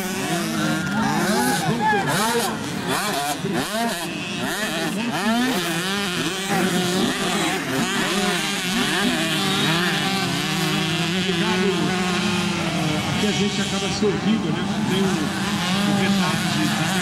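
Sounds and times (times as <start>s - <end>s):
motocross bikes revving: 0.0s - 17.0s.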